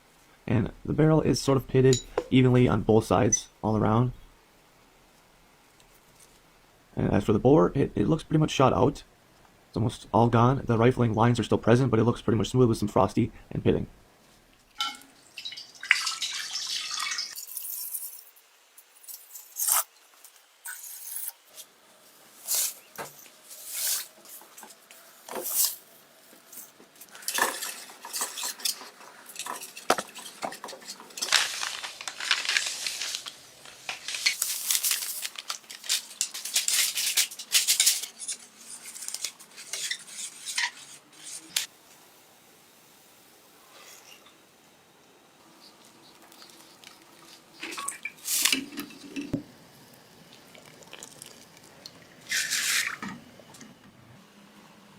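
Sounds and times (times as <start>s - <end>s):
scratchy scraping strokes: 37.6s - 41.7s, 52.3s - 53.0s.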